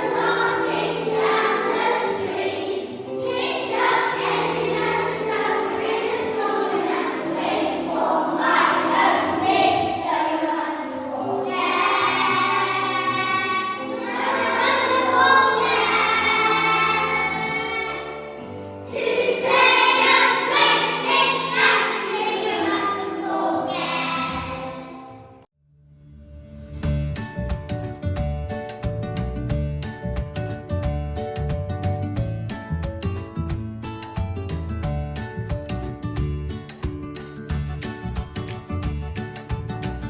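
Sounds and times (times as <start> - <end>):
instrumental accompaniment: 0.0 - 25.2
children's choir singing: 0.0 - 25.5.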